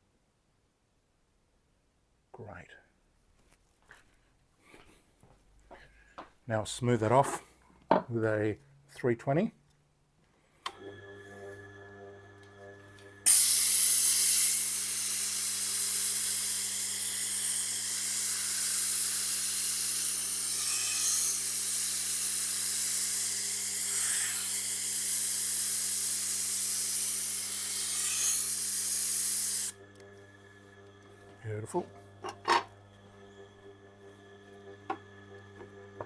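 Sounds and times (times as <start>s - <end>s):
knife grinding on a wheel: 13.3s - 29.7s
low motor hum: 29.8s - 36.0s.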